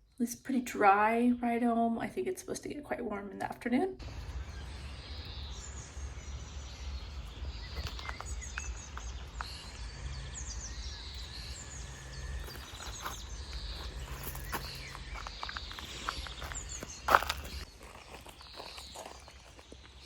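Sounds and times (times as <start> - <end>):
steady low rumble: 4.0 - 17.7
small birds chirping: 4.0 - 20.0.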